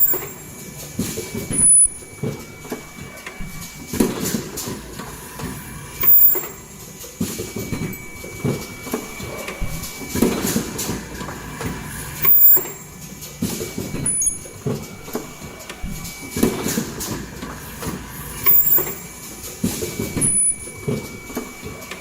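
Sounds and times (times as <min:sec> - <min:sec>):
loud short machine bursts: 0:00.0 - 0:00.6, 0:04.8 - 0:06.8, 0:09.7 - 0:13.0, 0:16.0 - 0:21.2
machine mechanical clatter: 0:00.0 - 0:22.0
thin steady high tone: 0:00.0 - 0:22.0.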